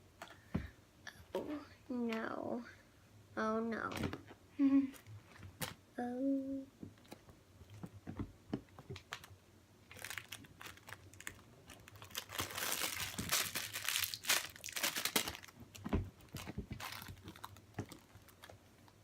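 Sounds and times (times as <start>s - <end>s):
toys crinkling and rustling: 7.0s - 19.0s.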